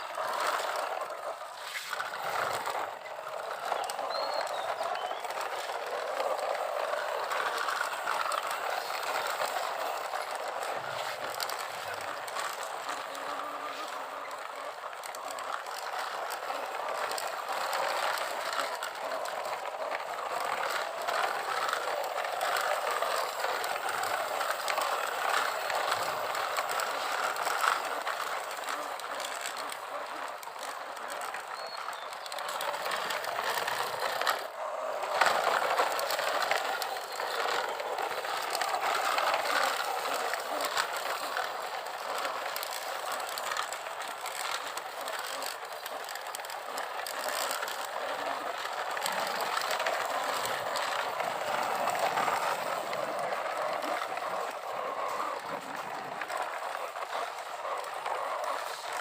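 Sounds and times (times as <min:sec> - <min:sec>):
plastic toys rattling and scraping: 0:00.0 - 0:59.0.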